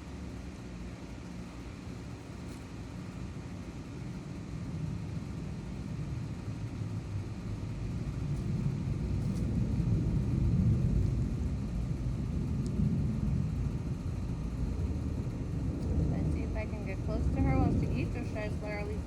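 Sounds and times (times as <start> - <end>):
passing motor vehicle rumble: 7.0 - 19.0.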